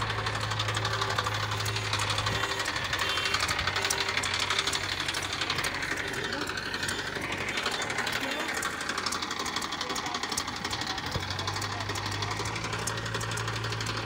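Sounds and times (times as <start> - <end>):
diesel engine clattering: 0.0 - 14.0.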